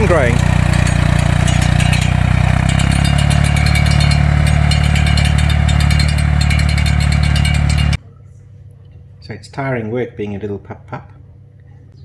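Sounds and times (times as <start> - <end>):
fast even clicking: 0.0 - 8.0
tractor engine running: 0.0 - 8.0.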